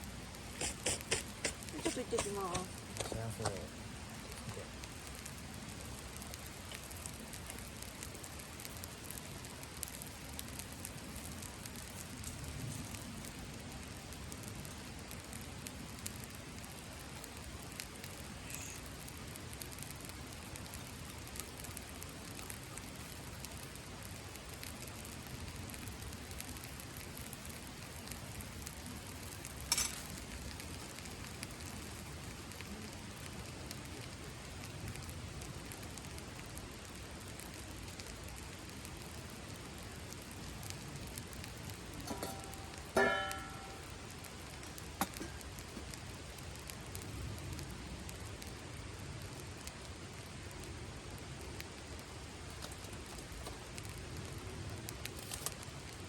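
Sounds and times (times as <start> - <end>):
campfire crackling: 0.0 - 56.0
sharp pop of fire: 41.7 - 46.0.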